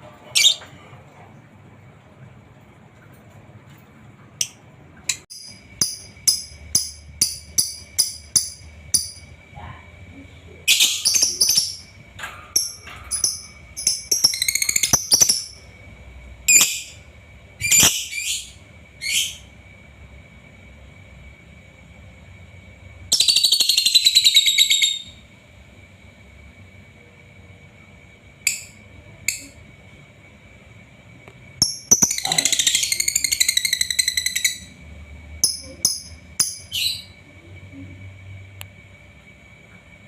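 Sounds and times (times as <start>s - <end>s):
lovebird singing: 10.6s - 12.0s, 12.6s - 15.6s, 23.1s - 25.2s, 31.6s - 34.8s, 35.4s - 37.2s.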